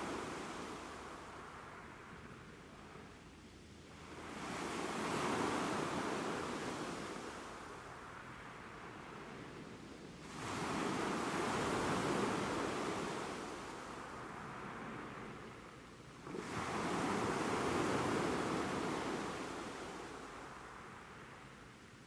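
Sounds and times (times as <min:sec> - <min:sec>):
ocean waves breaking on shore: 0:00.0 - 0:01.7, 0:04.0 - 0:09.3, 0:10.2 - 0:21.4.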